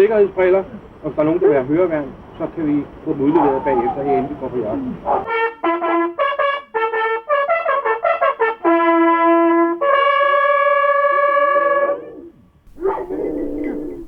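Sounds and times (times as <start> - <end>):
hunting horn blasts: 5.3 - 11.8, 12.7 - 14.0.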